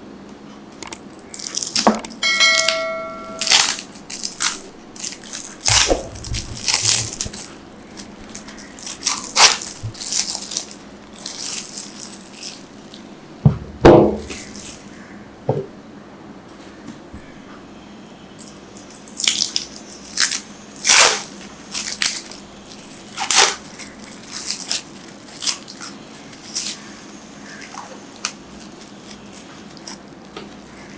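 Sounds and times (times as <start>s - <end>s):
short ringing tone: 2.2s - 3.7s
loud thuds: 13.4s - 14.4s.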